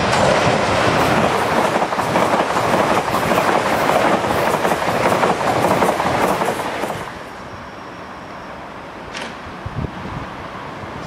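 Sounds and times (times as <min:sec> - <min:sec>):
train wheels clattering over track: 0:00.0 - 0:07.3.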